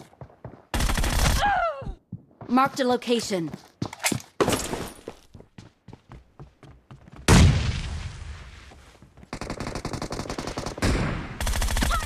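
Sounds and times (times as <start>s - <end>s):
rapid automatic fire: 9.3s - 12.0s.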